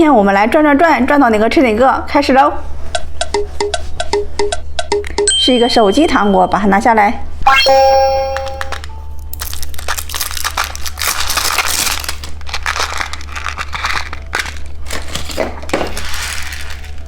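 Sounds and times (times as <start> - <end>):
plastic packaging crinkling: 8.7 - 17.0.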